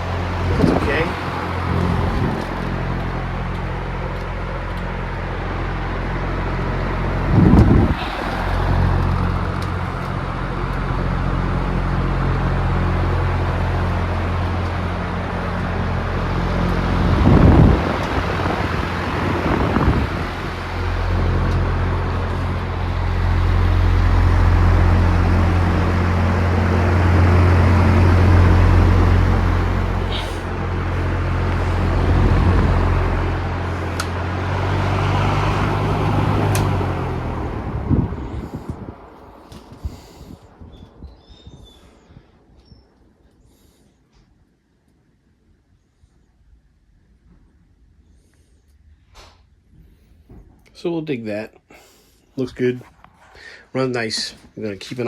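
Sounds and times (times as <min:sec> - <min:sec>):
box fan running: 0:00.0 - 0:42.6.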